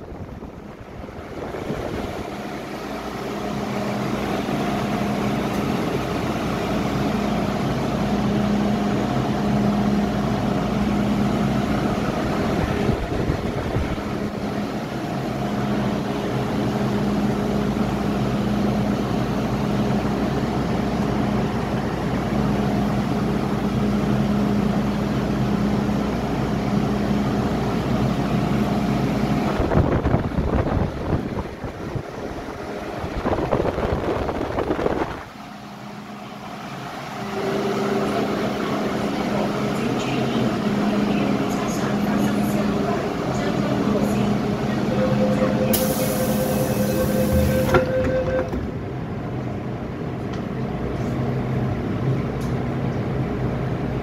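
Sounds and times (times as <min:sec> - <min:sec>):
train moving off: 0:00.0 - 0:53.9
train car hum: 0:00.0 - 0:54.0
pitched tone: 0:37.2 - 0:38.5, 0:44.6 - 0:48.7.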